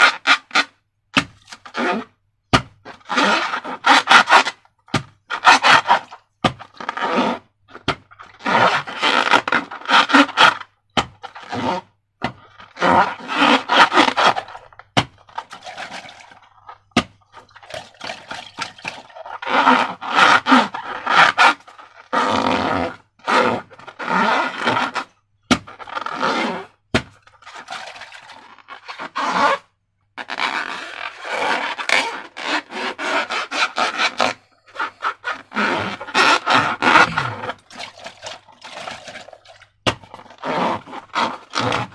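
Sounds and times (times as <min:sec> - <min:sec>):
wet squishing of slime balloon: 0:25.5 - 0:41.9.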